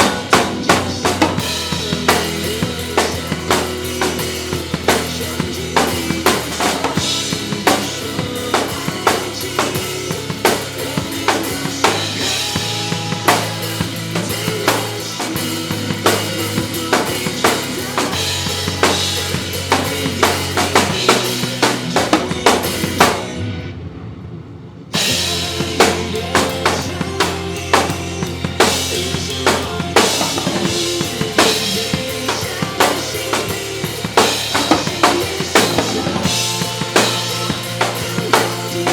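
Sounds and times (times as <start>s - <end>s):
acoustic drum kit playing: 0.0s - 23.4s, 25.0s - 38.9s
pop song backing track: 0.0s - 23.6s, 25.0s - 38.9s.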